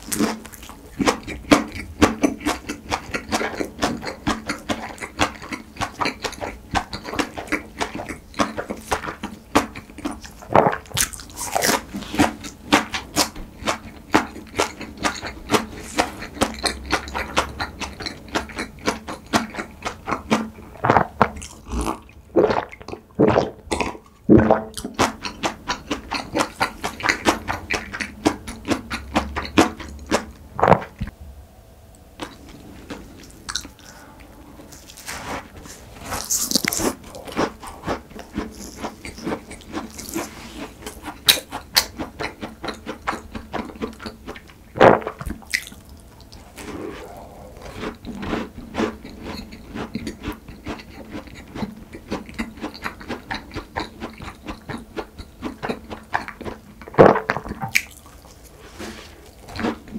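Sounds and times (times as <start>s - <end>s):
chewing crunchy pastry: 0.0s - 31.1s, 32.2s - 59.9s.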